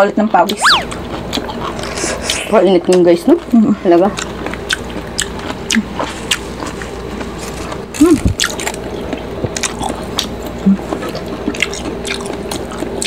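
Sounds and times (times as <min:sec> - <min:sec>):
wet chewing and lip smacks: 0:08.4 - 0:13.0.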